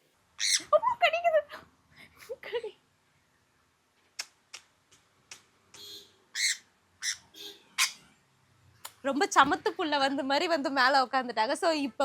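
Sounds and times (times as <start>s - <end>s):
parrot squawking and chirping: 0.4s - 0.8s, 6.3s - 8.1s.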